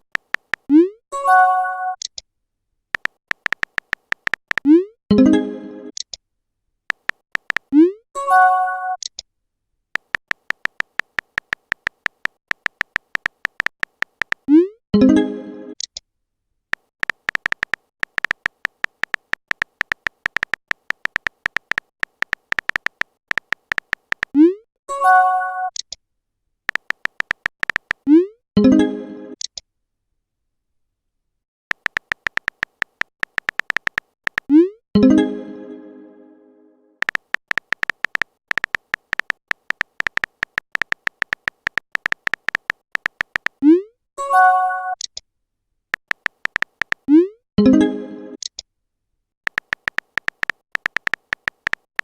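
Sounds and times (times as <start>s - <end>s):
rapid short high typing beeps: 3.0s - 4.9s, 7.0s - 8.0s, 17.0s - 24.6s, 26.7s - 28.2s, 31.7s - 34.7s, 37.0s - 43.8s, 46.0s - 47.3s, 49.5s - 52.0s.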